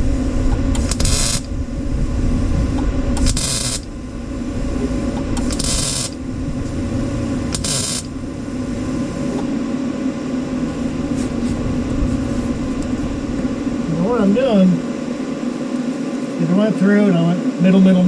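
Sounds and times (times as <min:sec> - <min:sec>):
steady low hum: 0:00.0 - 0:18.0
tack welds crackling hiss: 0:00.7 - 0:01.5, 0:03.2 - 0:03.9, 0:05.3 - 0:06.2, 0:07.5 - 0:08.2.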